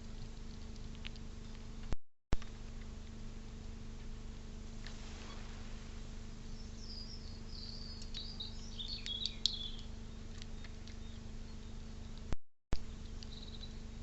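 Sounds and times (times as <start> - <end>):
low electrical hum: 0.0 - 14.0
small bird chirping: 6.4 - 14.0.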